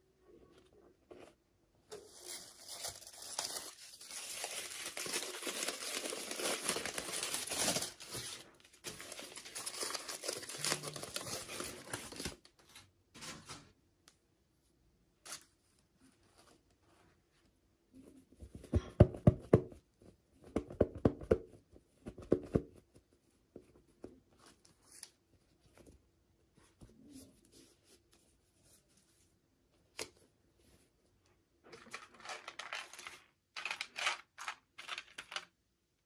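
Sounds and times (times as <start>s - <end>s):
packaging crinkling and tearing: 2.1s - 12.5s, 31.8s - 35.5s.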